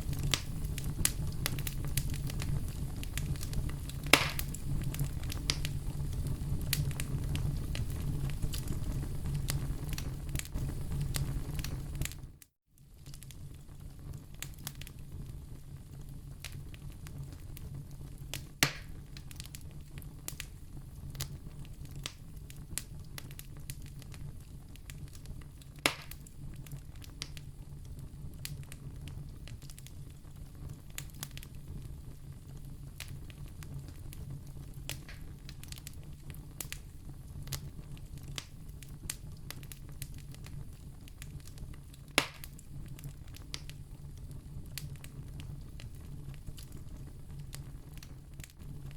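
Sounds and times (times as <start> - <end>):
campfire crackling: 0.0 - 48.9.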